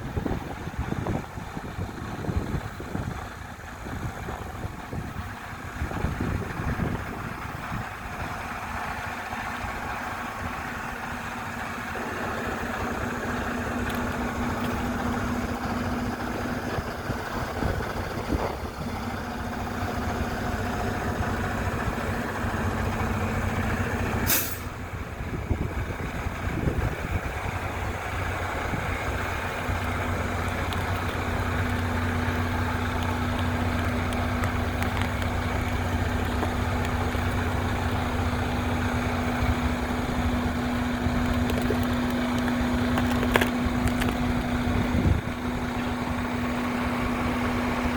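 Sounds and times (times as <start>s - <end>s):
truck diesel engine running: 0.0s - 47.9s
air hiss burst: 24.3s - 24.8s.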